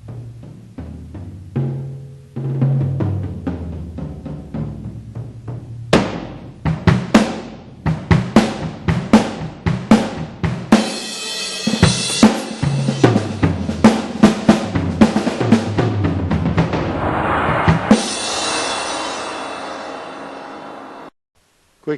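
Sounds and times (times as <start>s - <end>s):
kick snare and tom hits: 6.0s - 9.7s
cymbal crash: 16.2s - 21.2s.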